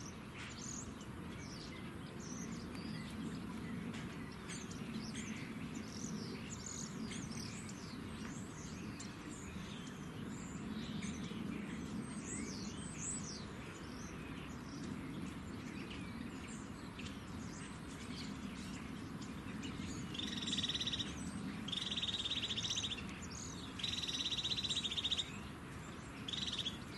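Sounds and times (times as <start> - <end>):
small birds chirping: 0.0 - 26.9
loud rapid bird trills: 19.8 - 25.4, 26.2 - 26.9.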